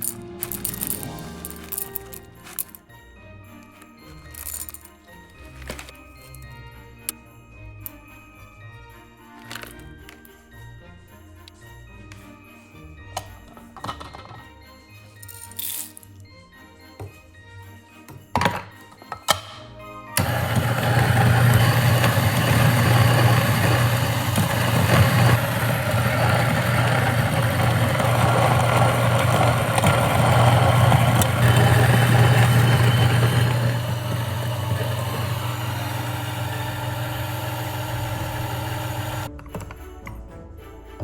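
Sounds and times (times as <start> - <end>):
coffee grinder grinding beans: 0.0 - 2.8, 20.2 - 39.3.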